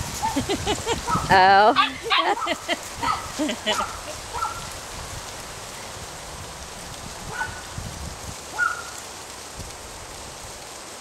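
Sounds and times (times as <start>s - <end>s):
rustling hiss: 0.0s - 11.0s
puppies yipping: 0.2s - 4.6s, 8.6s - 9.0s.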